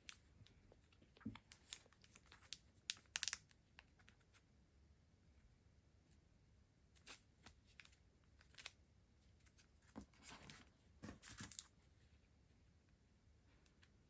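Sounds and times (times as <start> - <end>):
packaging rustling: 10.2 - 11.7.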